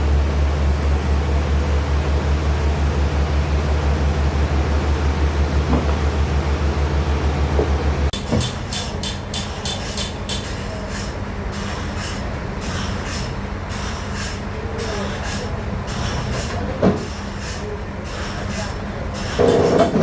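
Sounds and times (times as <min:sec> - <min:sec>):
machine hum: 0:00.0 - 0:08.3.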